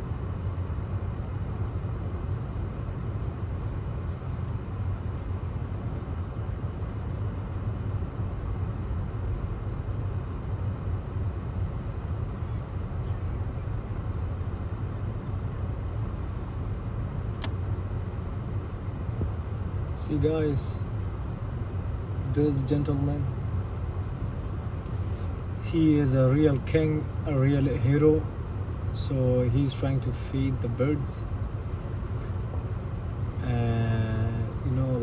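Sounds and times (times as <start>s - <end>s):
road traffic rumble: 0.0s - 35.0s
sharp click: 17.2s - 17.6s.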